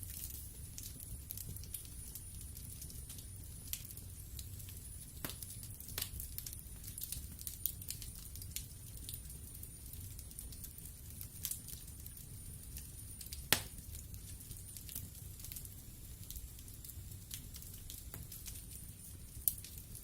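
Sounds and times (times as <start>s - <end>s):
low fire rumble: 0.0s - 20.0s
wood fire crackling: 0.0s - 20.0s
sharp pops of burning wood: 5.2s - 8.7s, 12.7s - 18.7s.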